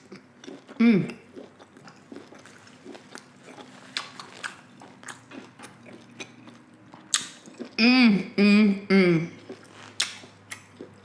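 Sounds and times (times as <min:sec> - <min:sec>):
person chewing food: 0:00.0 - 0:07.8, 0:09.3 - 0:11.0
wet mouth clicks and smacks: 0:07.1 - 0:07.5, 0:10.0 - 0:10.7.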